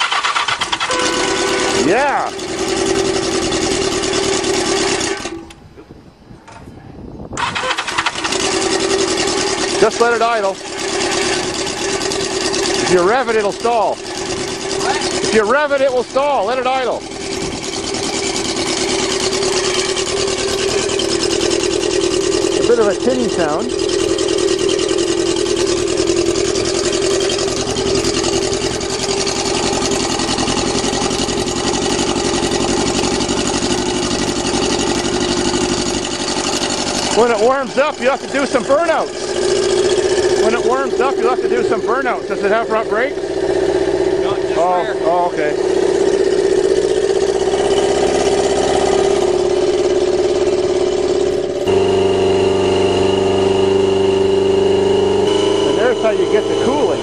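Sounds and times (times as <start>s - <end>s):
motorcycle engine idling: 0.0s - 5.7s, 7.4s - 57.0s.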